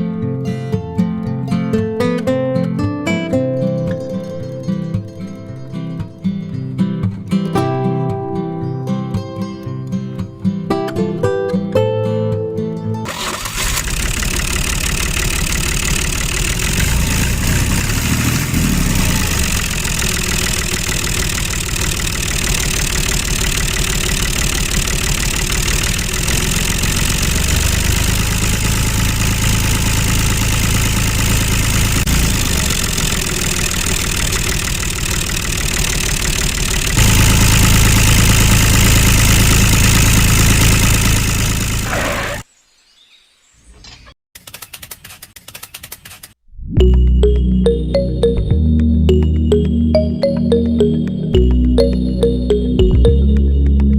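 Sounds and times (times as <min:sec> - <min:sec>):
small motor running: 0:13.2 - 0:42.4.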